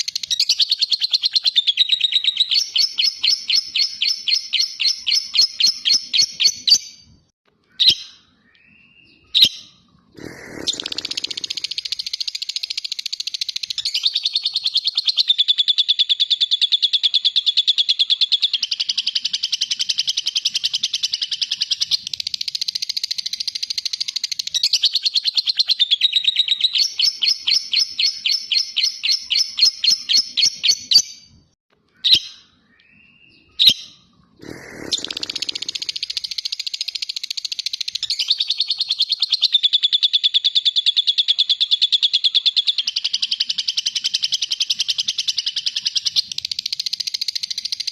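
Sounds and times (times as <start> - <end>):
lovebird chattering trill: 10.2 - 15.8, 34.4 - 47.9
short bird calls: 34.4 - 36.4.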